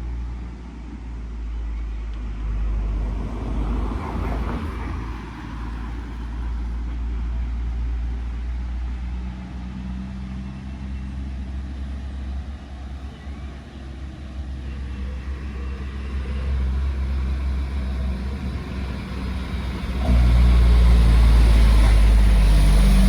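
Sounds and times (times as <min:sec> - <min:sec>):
engine hum: 0:00.0 - 0:23.0
low engine rumble: 0:00.0 - 0:23.0
vehicle passing close: 0:17.2 - 0:23.0.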